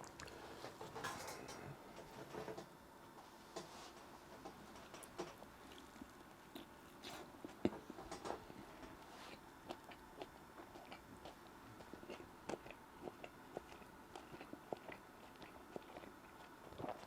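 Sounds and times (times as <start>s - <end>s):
person chewing food: 0.0s - 1.3s, 5.0s - 17.0s.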